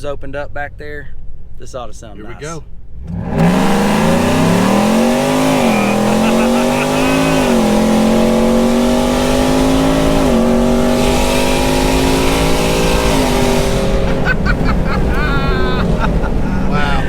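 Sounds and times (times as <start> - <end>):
truck engine revving at full throttle: 2.3 - 17.0.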